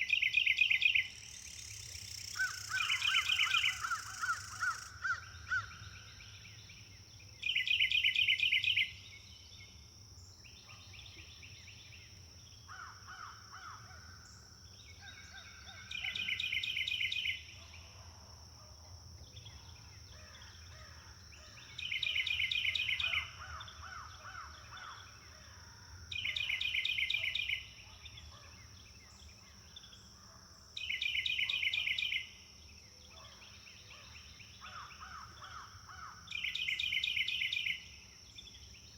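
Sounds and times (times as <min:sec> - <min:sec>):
loud rapid bird trill: 0:00.0 - 0:05.2.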